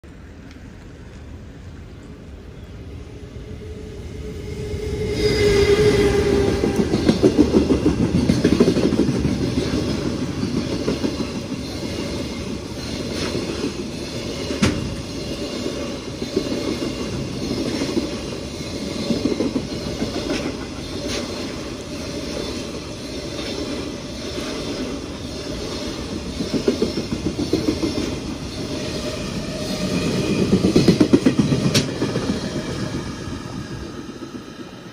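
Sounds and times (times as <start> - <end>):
freight train rumble: 0.1 - 34.9
wheels clacking on rail joints: 6.4 - 32.8.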